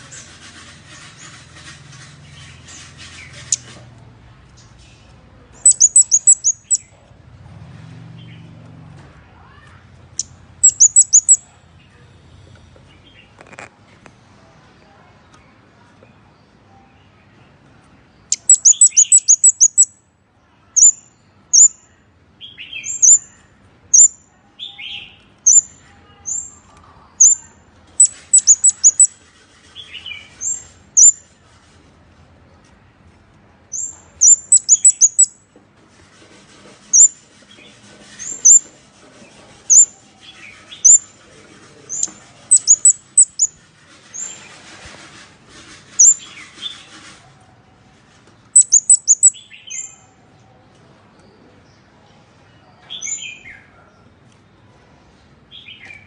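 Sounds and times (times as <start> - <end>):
bird high-pitched ticking calls: 5.6 - 6.9, 10.2 - 11.4, 18.3 - 19.9, 20.8 - 21.8, 22.9 - 23.2, 24.0 - 24.2, 25.5 - 25.7, 27.2 - 27.4, 28.0 - 29.1, 31.0 - 31.2, 33.8 - 35.4, 38.3 - 38.6, 40.8 - 41.0, 42.0 - 43.5, 46.0 - 46.2, 48.6 - 49.4.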